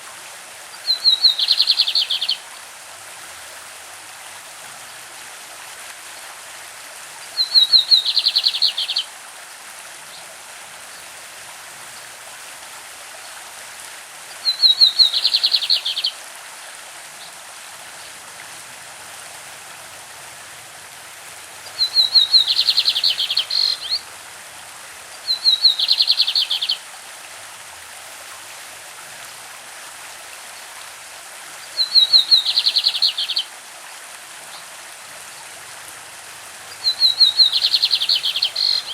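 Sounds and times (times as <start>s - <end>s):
stream running: 0.0s - 38.9s
bird singing: 0.9s - 2.4s, 7.4s - 9.0s, 14.4s - 16.1s, 21.7s - 24.0s, 25.3s - 26.8s, 31.8s - 33.5s, 36.8s - 38.9s.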